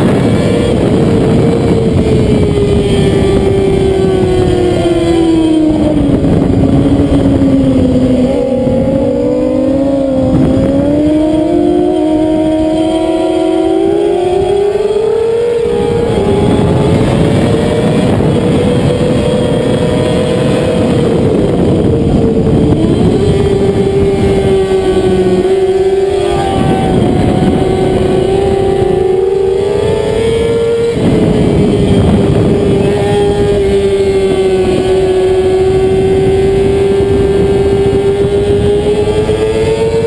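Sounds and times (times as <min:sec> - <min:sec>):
motorcycle engine at high revs: 0:00.0 - 0:40.0.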